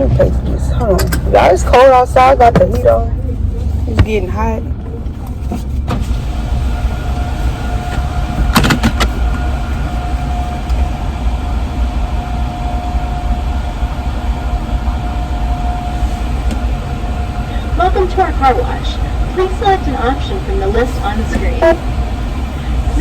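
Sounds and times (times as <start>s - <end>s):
car engine idling: 0.0s - 23.0s
thin steady whine: 0.0s - 23.0s
heater blowing: 5.9s - 23.0s.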